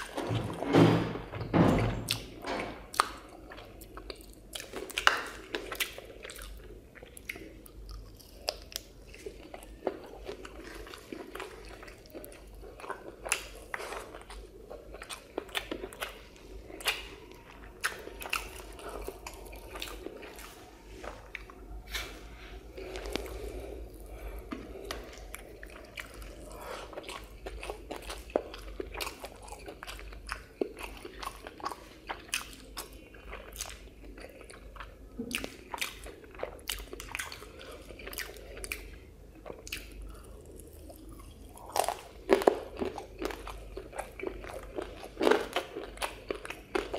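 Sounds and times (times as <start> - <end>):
person chewing food: 0.0 - 0.6, 2.0 - 46.9.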